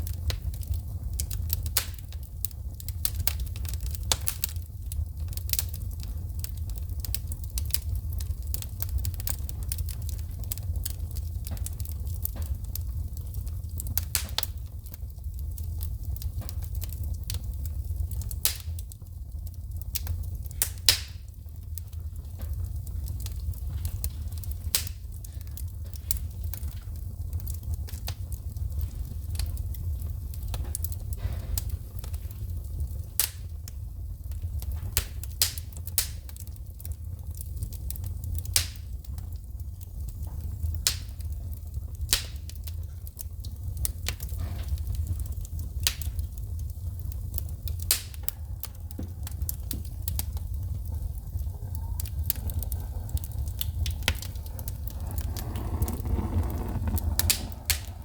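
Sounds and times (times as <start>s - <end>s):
wood fire crackling: 0.0s - 58.0s
sharp pops of sparks: 37.4s - 39.1s, 40.0s - 50.9s, 52.0s - 58.0s.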